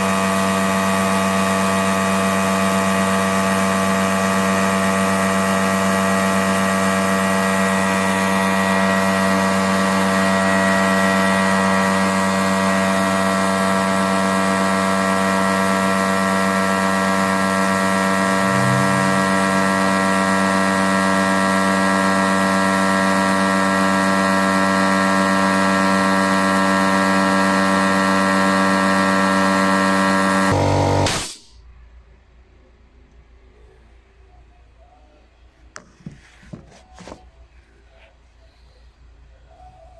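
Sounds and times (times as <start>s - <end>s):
air compressor humming: 17.3s - 20.5s, 30.2s - 31.5s.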